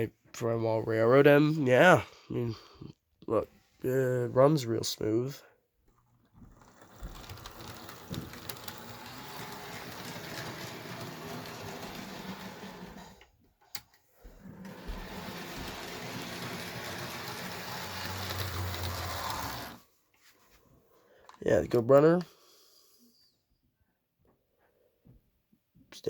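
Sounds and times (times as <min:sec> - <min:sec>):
model train motor whirring: 0:06.5 - 0:13.3, 0:14.5 - 0:19.8.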